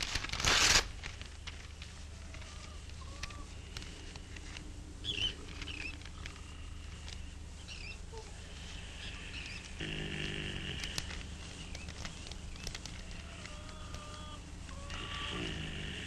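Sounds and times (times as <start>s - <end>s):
steady low hum: 0.0s - 16.0s
small bird chirps: 5.0s - 6.1s, 7.6s - 9.8s.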